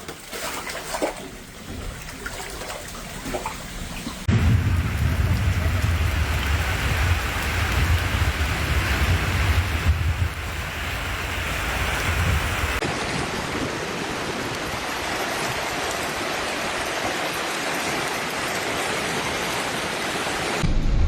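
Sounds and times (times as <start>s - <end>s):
small water splashes: 0.0s - 4.4s
wind rumbling on microphone: 3.1s - 17.3s
heavy rain downpour: 4.2s - 20.7s.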